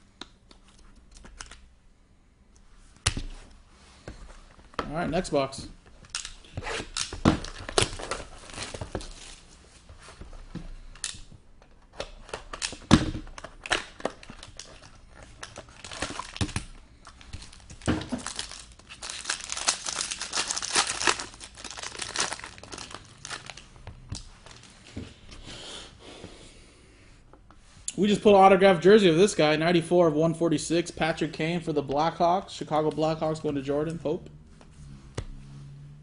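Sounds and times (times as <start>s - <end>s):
plastic wrapping crinkling: 13.6s - 24.8s.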